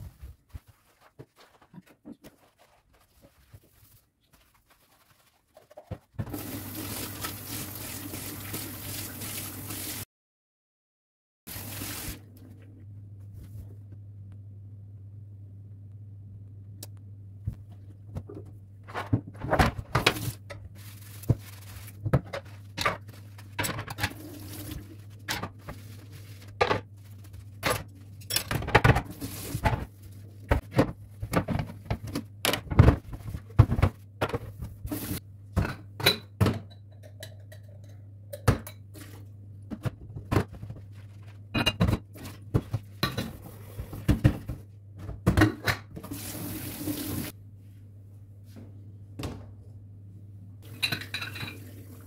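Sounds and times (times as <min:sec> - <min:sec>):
dishes and cutlery clattering: 0:50.7 - 0:51.7.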